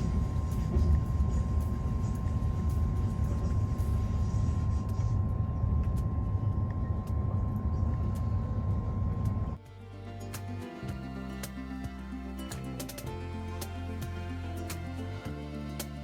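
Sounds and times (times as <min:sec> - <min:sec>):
music: 0:00.0 - 0:05.2, 0:09.6 - 0:16.0
train rumbling: 0:00.0 - 0:09.6
faint high hum: 0:00.0 - 0:16.0.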